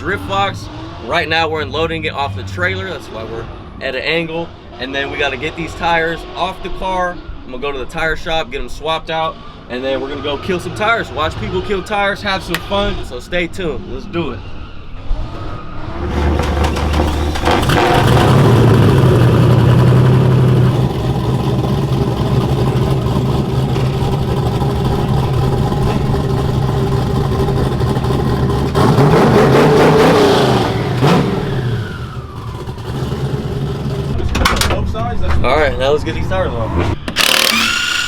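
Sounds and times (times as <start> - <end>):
car engine revving: 9.3 - 35.1, 35.8 - 38.0.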